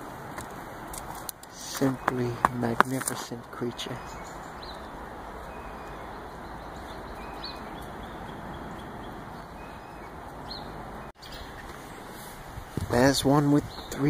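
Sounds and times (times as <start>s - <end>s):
outdoor background hiss: 0.0s - 14.0s
faint high bird chirps: 3.8s - 12.2s.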